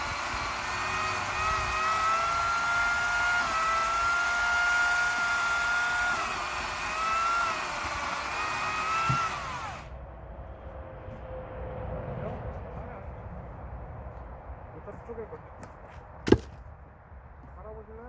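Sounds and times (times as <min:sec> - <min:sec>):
power saw cutting wood: 0:00.0 - 0:09.9.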